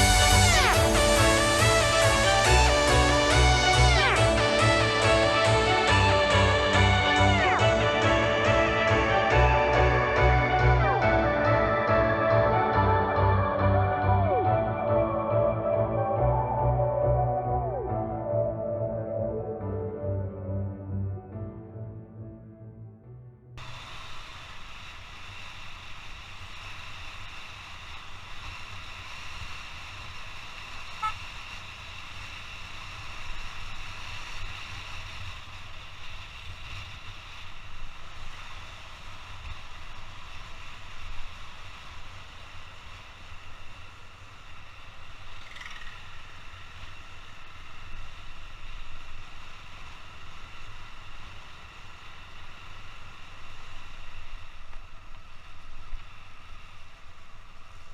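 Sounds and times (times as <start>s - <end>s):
road noise: 0.0s - 20.6s.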